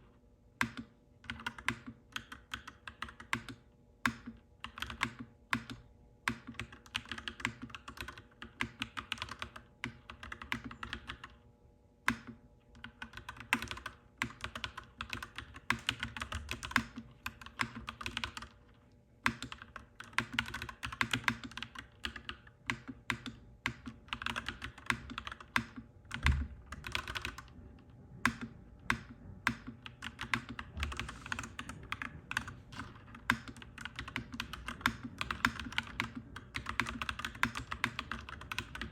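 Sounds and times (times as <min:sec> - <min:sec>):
mechanical keyboard typing: 0:00.6 - 0:11.4, 0:12.1 - 0:27.5, 0:28.2 - 0:38.9.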